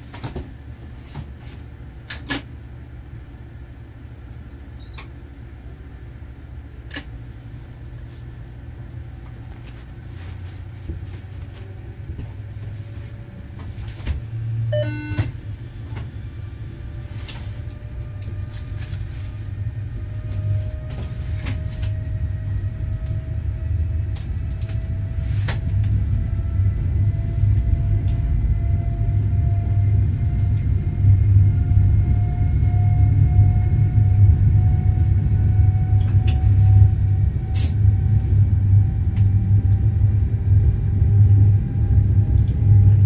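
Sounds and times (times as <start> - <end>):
electric train rumble: 0.0 - 43.0
brief tone: 4.8 - 5.1, 14.6 - 15.4
faint rising whine: 7.4 - 43.0.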